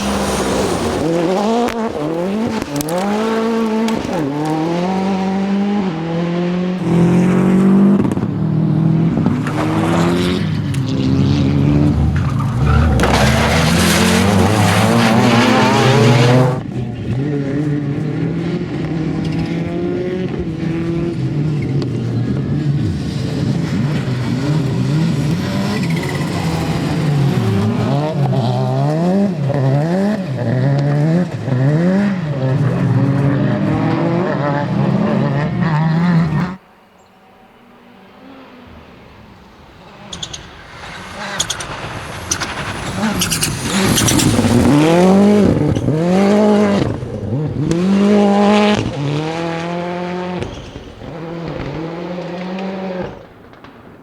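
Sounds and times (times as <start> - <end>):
rally car engines revving: 0.0 - 54.0
sharp cracks: 50.3 - 54.0.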